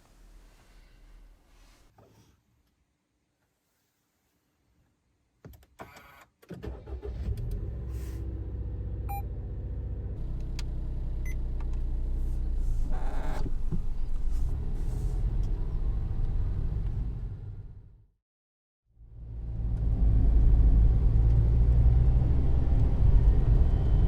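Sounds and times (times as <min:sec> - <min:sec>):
car engine starting and running: 0:06.6 - 0:18.0, 0:19.2 - 0:24.0.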